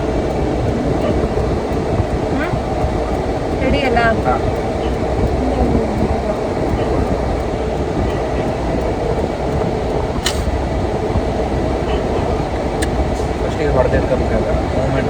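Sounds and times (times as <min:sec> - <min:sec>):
car engine and tyres rumbling: 0:00.0 - 0:15.0
sharp click: 0:10.2 - 0:10.6.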